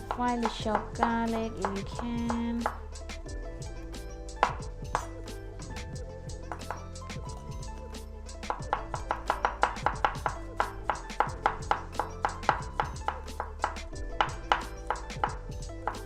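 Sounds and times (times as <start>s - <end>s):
background music: 0.0s - 16.0s
knife chopping on cutting board: 6.5s - 6.8s, 8.5s - 16.0s.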